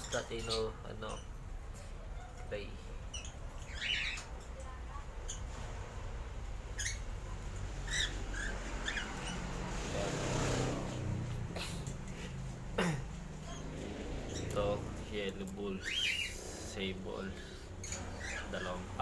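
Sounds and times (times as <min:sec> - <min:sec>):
cockatiels chirping: 0:00.0 - 0:01.4, 0:03.1 - 0:04.4, 0:06.7 - 0:10.1, 0:13.4 - 0:19.0.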